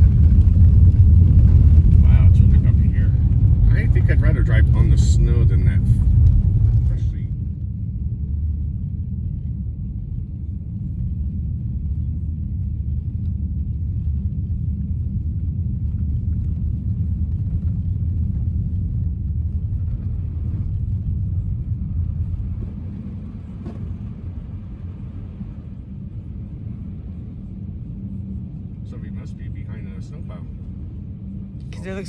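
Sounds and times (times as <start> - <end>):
tyre and road noise in car: 17.3 - 25.6.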